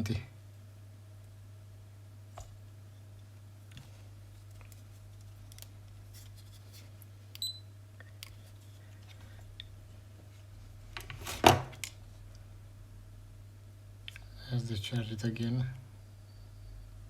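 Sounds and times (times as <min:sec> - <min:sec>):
steady low hum: 0:00.0 - 0:17.0
test meter beep: 0:07.4 - 0:07.7.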